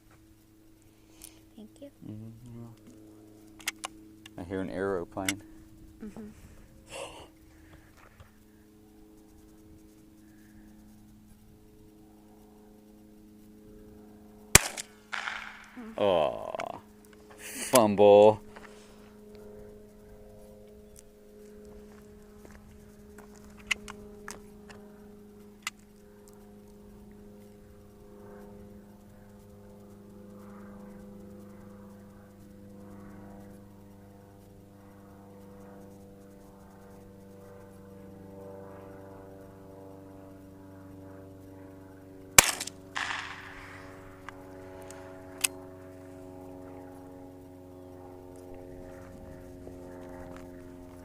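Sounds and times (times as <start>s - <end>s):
low engine drone: 0.0s - 51.0s
rifle shot with echo: 14.5s - 15.8s, 42.4s - 44.3s
sharp clicks: 42.4s - 45.6s.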